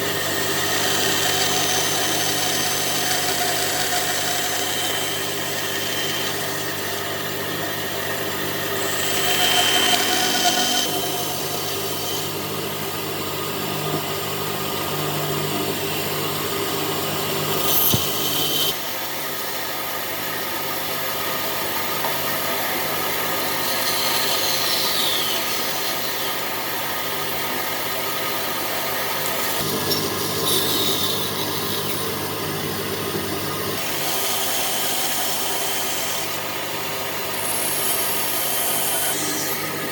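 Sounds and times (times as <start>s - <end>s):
power tool abrading wood: 8.6s - 18.8s.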